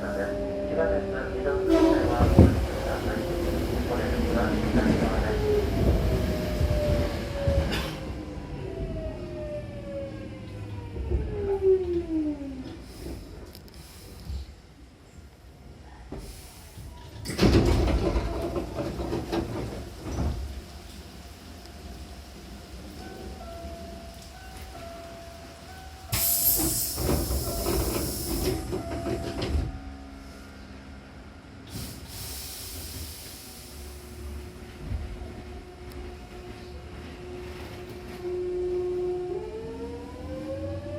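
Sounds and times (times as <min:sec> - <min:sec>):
train doors clattering: 0:01.6 - 0:09.1, 0:16.1 - 0:21.2, 0:22.4 - 0:30.0
pneumatic door air hiss: 0:26.1 - 0:28.7, 0:31.7 - 0:34.0.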